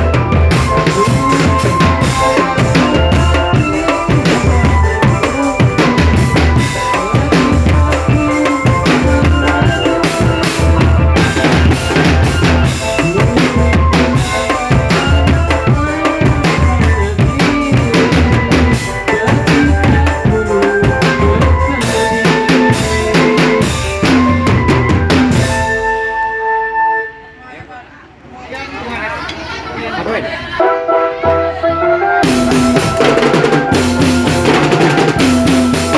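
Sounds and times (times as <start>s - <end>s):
bass drums beating: 0.0s - 26.2s, 31.3s - 35.9s
melodic instruments playing tune: 0.0s - 27.5s, 30.5s - 35.9s
snare drum strokes and rimshots: 32.2s - 35.9s.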